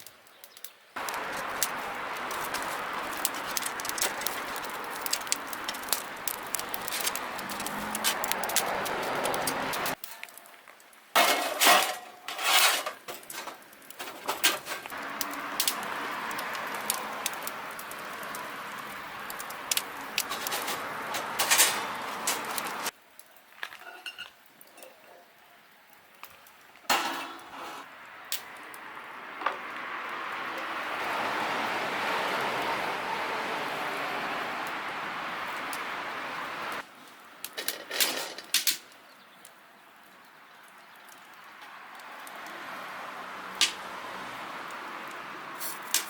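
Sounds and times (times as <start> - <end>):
metal clinking and clattering: 20.2 - 22.9.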